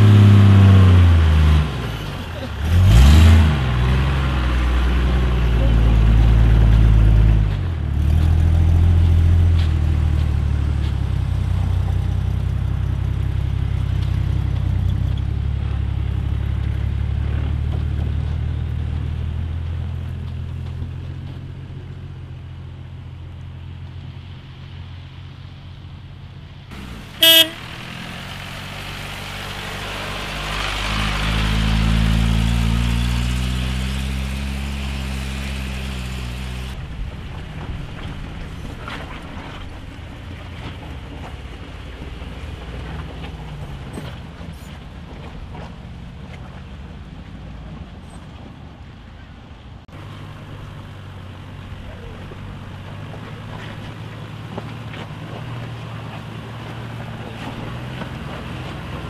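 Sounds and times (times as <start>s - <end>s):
second engine revving: 0.0s - 10.8s, 26.7s - 36.8s
off-road vehicle engine humming: 0.0s - 59.0s
short horn toot: 27.2s - 27.7s.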